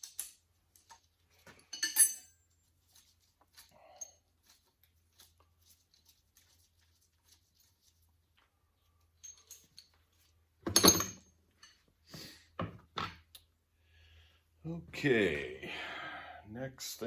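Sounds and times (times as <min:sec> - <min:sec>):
metal parts clinking: 0:00.0 - 0:04.6, 0:09.0 - 0:11.8.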